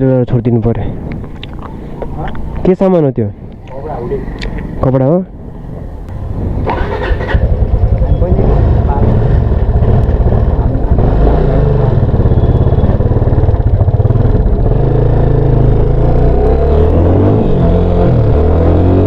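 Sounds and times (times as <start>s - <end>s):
motorcycle engine revving: 5.6s - 19.0s.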